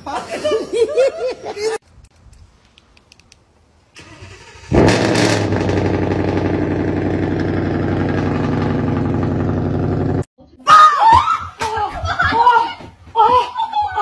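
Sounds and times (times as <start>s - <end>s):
car engine starting and idling: 3.9s - 10.2s.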